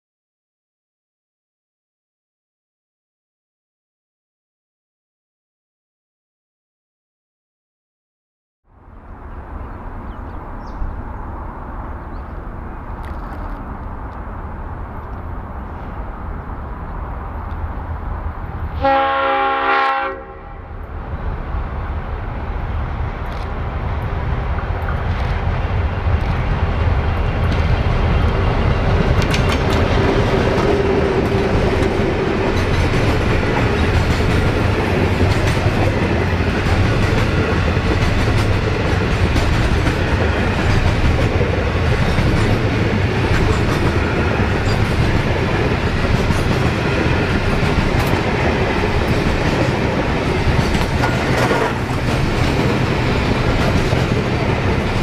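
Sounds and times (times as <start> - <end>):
train horn: 18.7 - 20.8
locomotive engine rumbling: 20.8 - 55.0.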